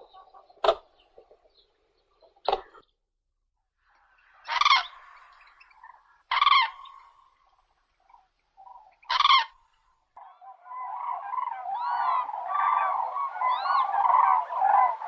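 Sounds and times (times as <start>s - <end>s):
crane trumpeting calls: 4.4s - 7.2s, 9.1s - 9.6s.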